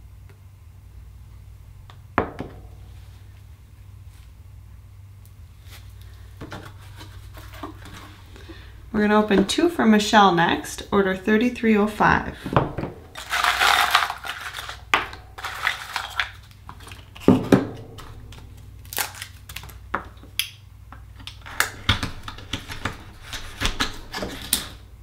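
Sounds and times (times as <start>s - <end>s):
rustling crunch: 13.1s - 17.3s.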